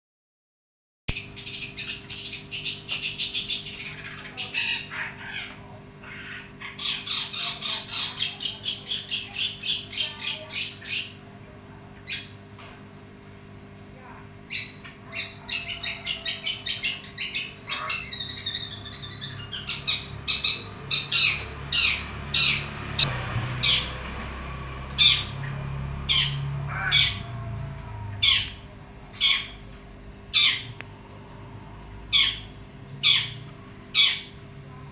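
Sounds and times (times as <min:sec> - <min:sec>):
steady low hum: 0:01.1 - 0:34.9
shrike harsh rapid calls: 0:14.5 - 0:24.0, 0:24.9 - 0:29.6, 0:30.2 - 0:31.1, 0:32.1 - 0:34.4.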